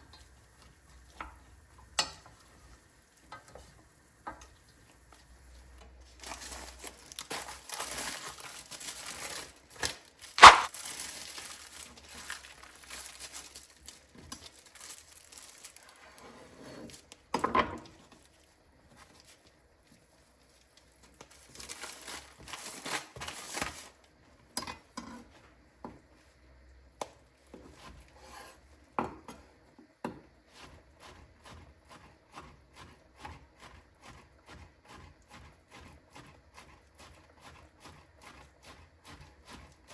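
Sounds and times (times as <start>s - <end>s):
crinkling and rustling: 5.1s - 24.2s.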